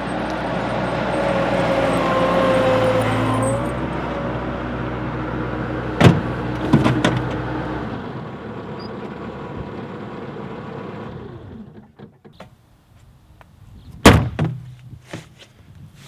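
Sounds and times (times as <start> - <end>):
skid steer engine running: 0.0 - 12.2.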